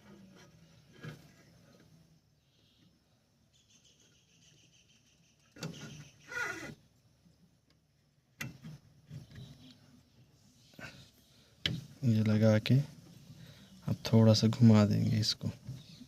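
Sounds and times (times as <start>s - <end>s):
bird calls: 3.5s - 6.8s.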